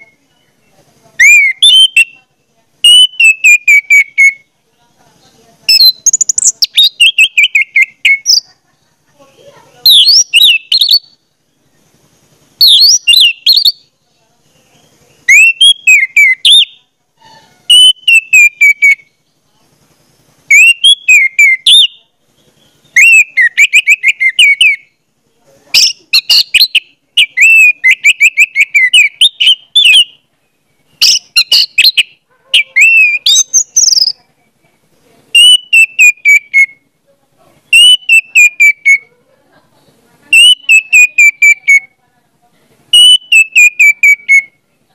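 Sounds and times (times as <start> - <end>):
bird whistling sliding chirps: 1.2 - 2.1, 12.6 - 13.8, 15.3 - 19.0, 32.6 - 34.2, 35.4 - 36.7.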